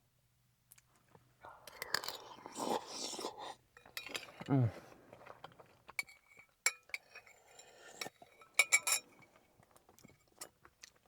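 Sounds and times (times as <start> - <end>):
utensils clinking against dish: 6.0 - 9.1.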